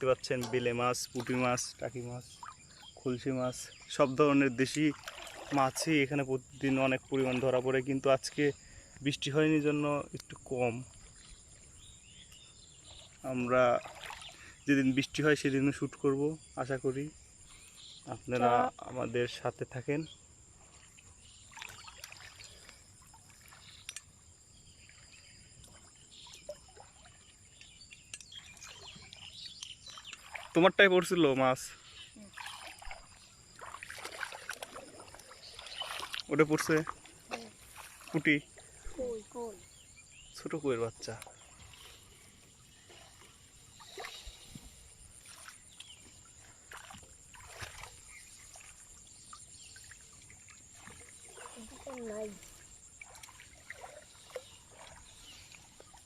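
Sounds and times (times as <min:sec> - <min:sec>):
crickets droning: 0:00.0 - 0:56.0
water sloshing and dripping: 0:00.0 - 0:56.0.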